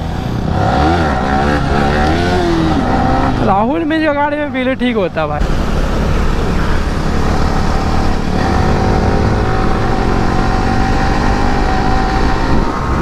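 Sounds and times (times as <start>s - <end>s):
motorcycle engine running hard: 0.0s - 13.0s
wind rumble on microphone: 5.4s - 13.0s.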